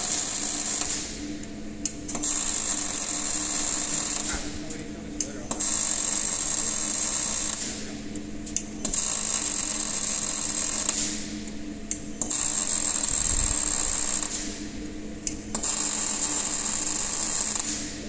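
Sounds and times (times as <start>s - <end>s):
small machine clicks: 0.0s - 1.1s, 1.8s - 7.8s, 8.5s - 11.2s, 11.9s - 14.5s, 15.2s - 18.0s
machine hissing whine: 0.0s - 18.0s
steady low hum: 0.0s - 18.0s.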